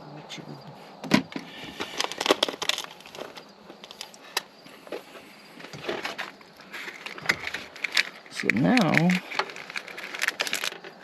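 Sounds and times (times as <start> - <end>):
hands handling parts: 1.2 - 11.0.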